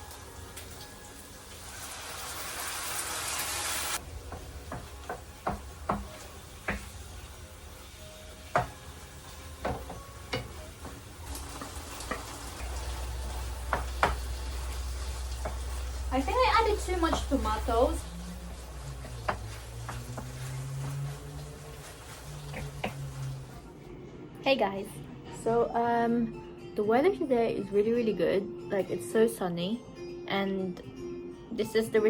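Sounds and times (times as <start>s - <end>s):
meat frying in a pan: 0.0s - 23.6s.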